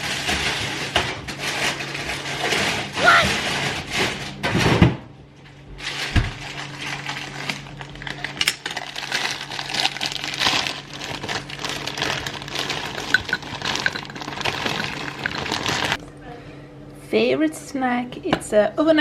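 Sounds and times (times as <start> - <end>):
small objects clinking and rustling: 5.8 - 16.0.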